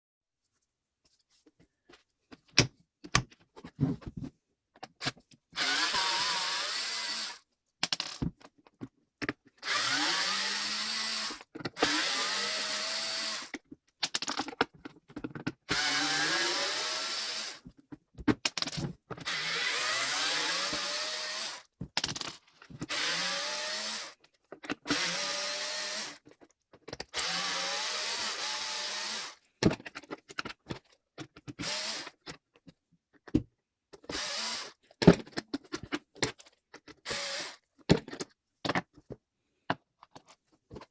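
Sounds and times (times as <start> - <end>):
electric chainsaw motor whining: 5.6 - 7.4, 9.7 - 13.5, 15.8 - 17.6, 19.3 - 21.6, 22.9 - 24.2, 27.2 - 29.4.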